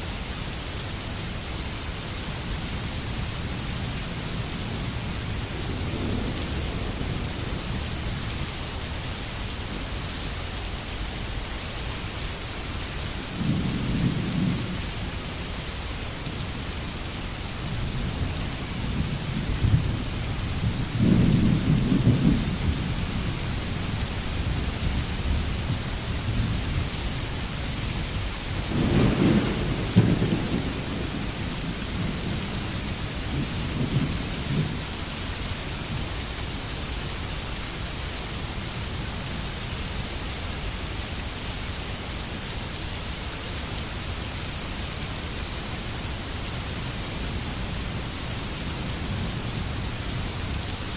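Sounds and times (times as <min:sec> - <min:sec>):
steady rain: 0:00.0 - 0:50.9
thunder rolling: 0:28.7 - 0:34.8.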